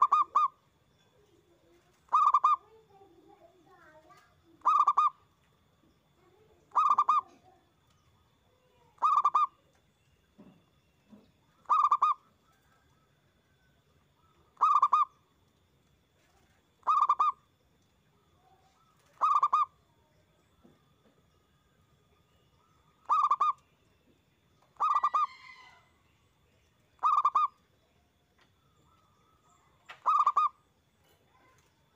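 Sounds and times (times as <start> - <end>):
dove cooing: 0.0 - 0.6, 1.8 - 2.8, 4.6 - 5.2, 6.7 - 7.6, 9.0 - 9.5, 11.6 - 13.0, 14.6 - 15.2, 16.2 - 17.4, 18.8 - 19.7, 23.0 - 23.6, 24.8 - 25.8, 27.0 - 27.5, 29.8 - 31.5.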